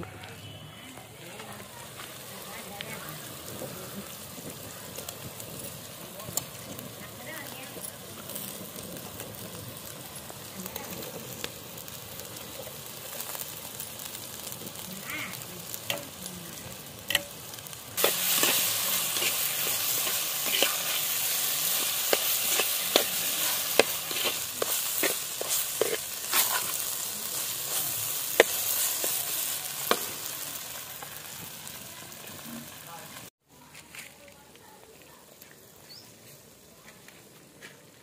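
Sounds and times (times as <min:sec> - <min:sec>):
fish sizzling in oil: 0:00.4 - 0:33.4
ladle scraping pot: 0:18.0 - 0:26.9.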